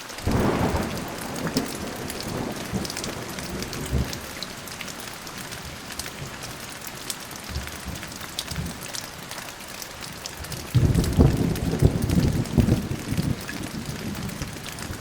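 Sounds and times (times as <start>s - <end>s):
rain drops pattering: 0.0s - 15.0s
thunder rumble: 0.3s - 6.5s, 10.6s - 15.0s.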